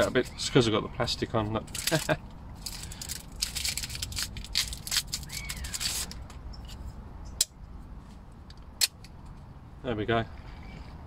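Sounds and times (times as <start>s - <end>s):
rustling and scraping handling: 0.0s - 0.7s, 1.3s - 7.0s.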